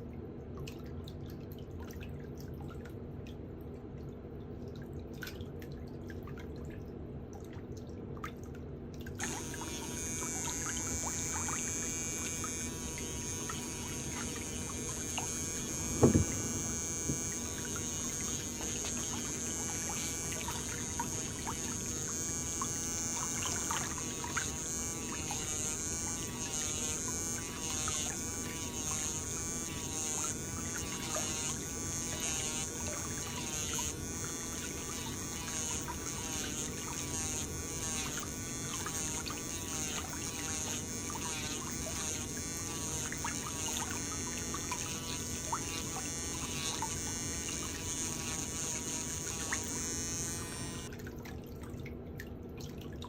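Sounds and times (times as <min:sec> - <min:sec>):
electric nail drill whirring: 0:09.2 - 0:50.9.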